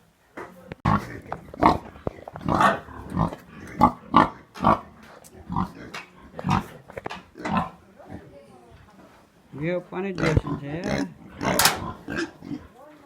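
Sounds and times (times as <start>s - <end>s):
pigs grunting: 0.8s - 8.3s, 10.1s - 12.8s.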